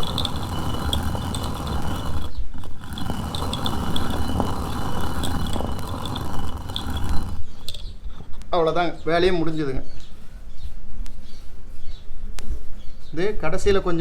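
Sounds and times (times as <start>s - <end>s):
stone grinder grinding: 0.0s - 7.9s.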